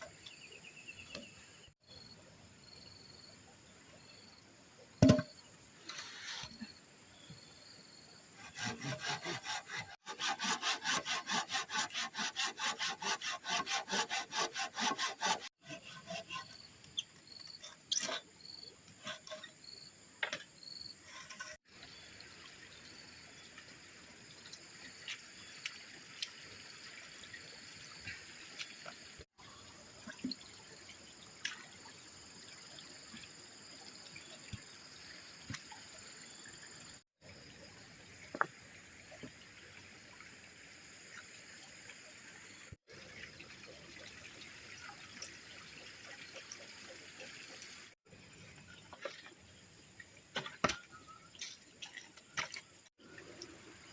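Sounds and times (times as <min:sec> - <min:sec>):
hand saw cutting wood: 0:08.4 - 0:16.6, 0:19.0 - 0:19.5, 0:21.1 - 0:21.6
trickle of running water: 0:21.6 - 0:53.9.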